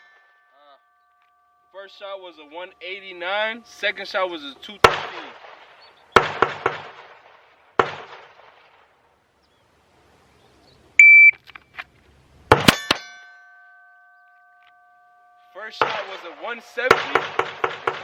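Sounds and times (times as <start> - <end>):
ringing tone: 0.0 - 4.9, 12.7 - 17.2
pistol shots: 4.8 - 8.9, 16.9 - 18.0
shot timer beep: 11.0 - 11.4.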